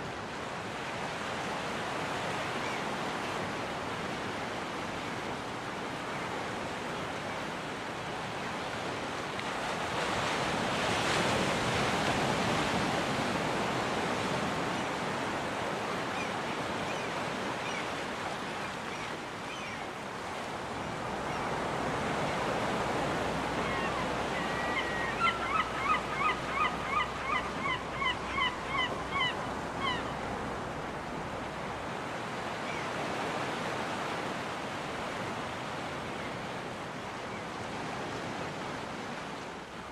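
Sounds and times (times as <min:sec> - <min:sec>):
gull calling: 0:23.6 - 0:30.2.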